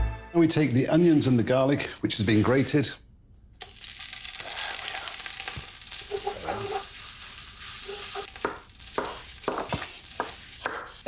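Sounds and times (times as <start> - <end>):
onions sizzling in hot oil: 3.6 - 10.7.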